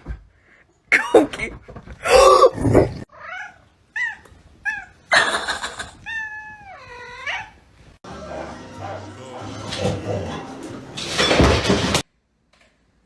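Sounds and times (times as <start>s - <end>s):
cat meowing: 3.1s - 5.0s, 5.8s - 7.6s.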